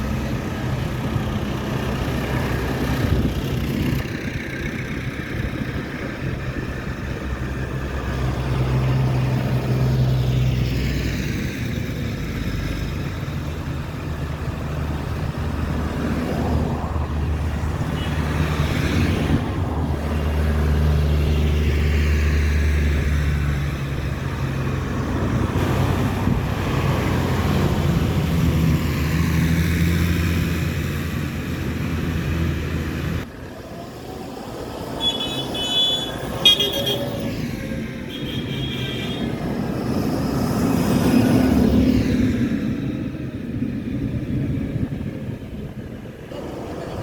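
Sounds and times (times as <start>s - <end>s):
heavy vehicle engines passing: 0.0s - 47.0s
horn toots: 35.0s - 37.3s, 38.0s - 39.4s.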